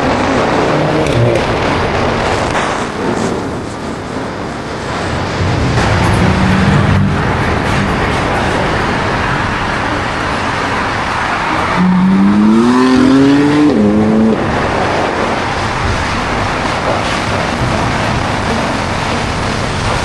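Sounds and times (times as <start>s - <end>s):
steady rush of noise: 0.0s - 20.0s
car engine revving: 5.1s - 19.7s.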